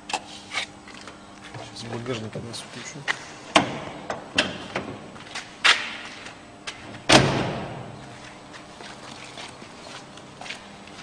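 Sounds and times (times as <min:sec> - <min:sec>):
clunks of car body: 0:03.5 - 0:05.1, 0:06.7 - 0:08.0.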